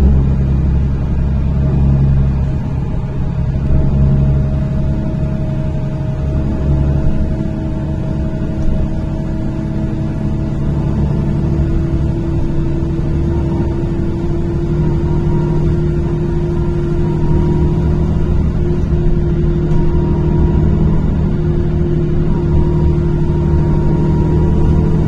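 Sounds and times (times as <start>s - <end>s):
bus engine drone: 0.0s - 25.0s
road rumble: 0.0s - 25.0s.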